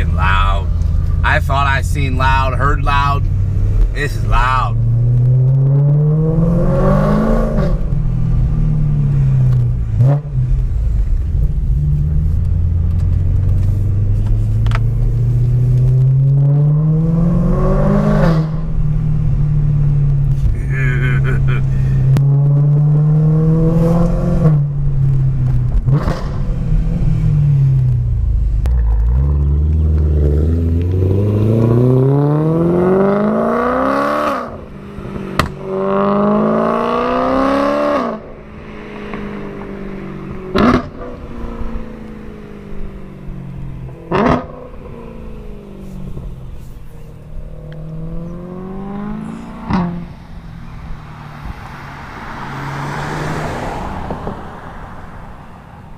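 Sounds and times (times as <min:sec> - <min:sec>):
car engine accelerating: 0:00.0 - 0:55.9
exhaust cracks: 0:40.2 - 0:41.3.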